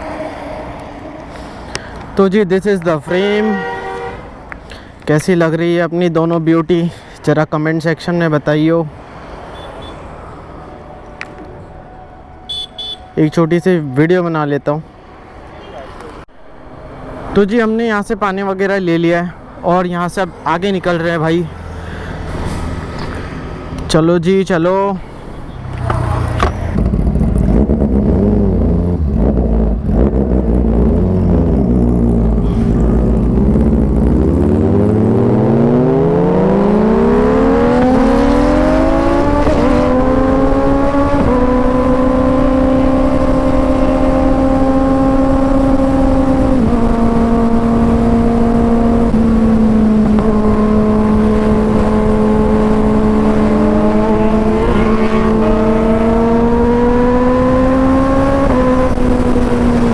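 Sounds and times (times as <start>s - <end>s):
motorcycle engine revving: 25.7s - 59.9s.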